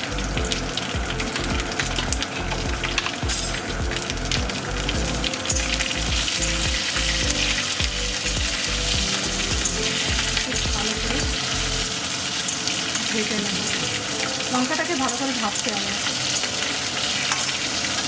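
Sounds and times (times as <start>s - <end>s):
chillies sizzling in hot oil: 0.0s - 18.0s.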